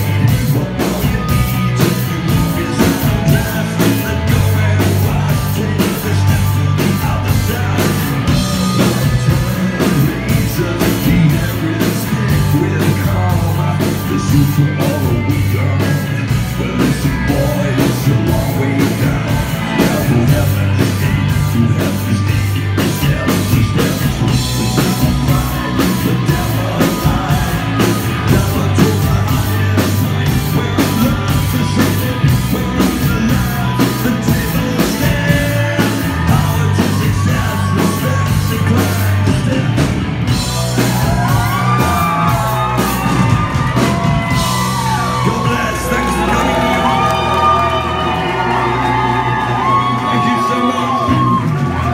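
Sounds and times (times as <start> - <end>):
person singing: 0.0 - 40.0
drums steady beat: 0.0 - 51.9
rock band playing live: 0.0 - 51.9.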